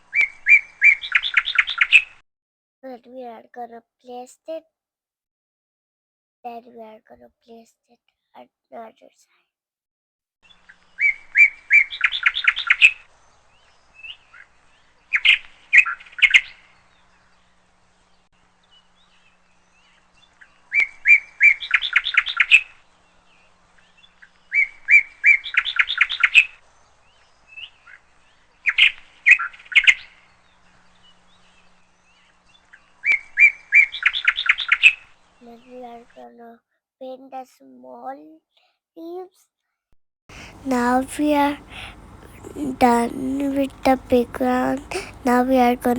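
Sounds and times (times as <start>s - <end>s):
songbird singing: 0.1s - 2.2s, 10.5s - 36.0s, 40.3s - 45.9s.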